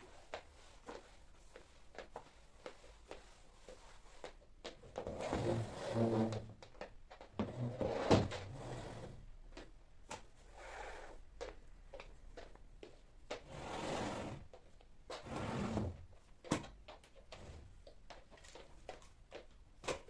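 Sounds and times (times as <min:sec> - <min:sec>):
sliding or rubbing noises: 0:05.1 - 0:06.5, 0:07.5 - 0:09.2, 0:13.4 - 0:14.5.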